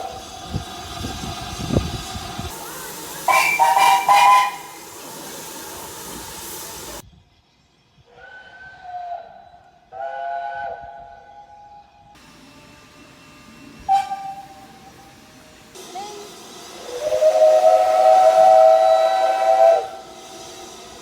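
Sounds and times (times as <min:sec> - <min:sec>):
steam hissing: 0:00.0 - 0:07.0, 0:12.2 - 0:21.0
steam locomotive chime whistle: 0:02.6 - 0:07.0, 0:09.9 - 0:21.0.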